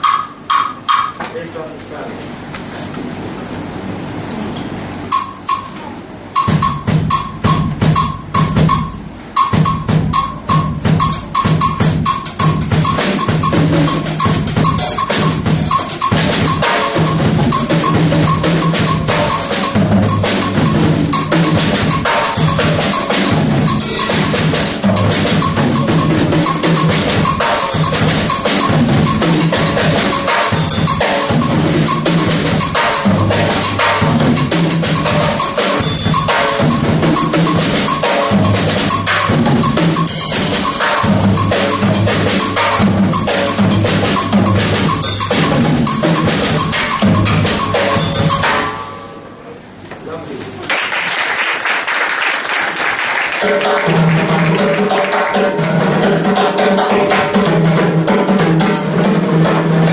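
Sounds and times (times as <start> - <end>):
high knock clave pattern: 0.0 - 1.6, 5.1 - 49.2
drum kit latin groove: 0.0 - 3.0, 4.8 - 49.3, 53.4 - 59.9.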